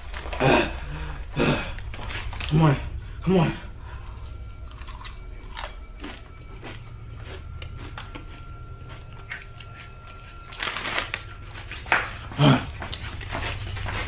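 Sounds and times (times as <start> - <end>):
chips crunching: 4.6 - 14.0.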